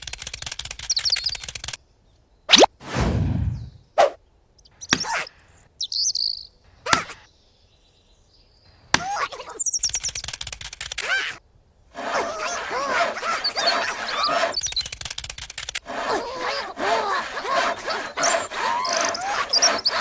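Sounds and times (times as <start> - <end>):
sharp clicks: 0.0 - 1.8, 9.8 - 11.1, 14.6 - 15.8
bird-like chirping: 0.8 - 1.5, 3.5 - 7.3, 9.3 - 10.3, 12.4 - 15.1, 18.1 - 20.0
falling swoop: 2.5 - 4.2.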